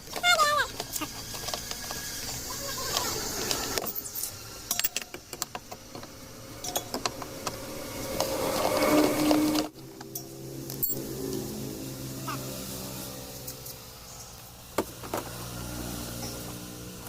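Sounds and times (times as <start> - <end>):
grinding: 0.0 - 13.8.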